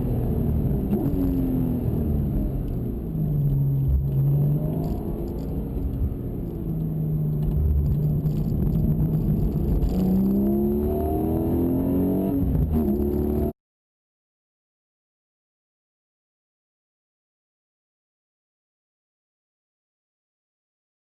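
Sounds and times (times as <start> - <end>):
car engine revving: 0.0 - 13.5.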